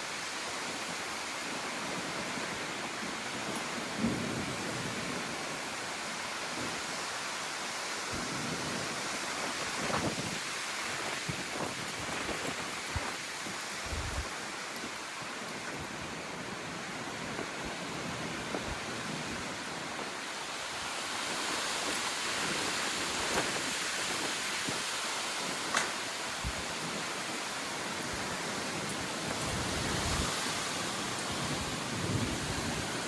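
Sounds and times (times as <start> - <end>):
strong wind rushing: 9.4 - 14.4
small ticks and knocks: 25.7 - 26.0.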